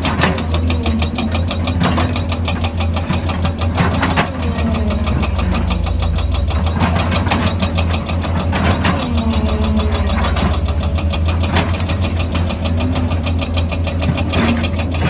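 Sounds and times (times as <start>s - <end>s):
excavator diesel engine pulsing: 0.0s - 15.0s.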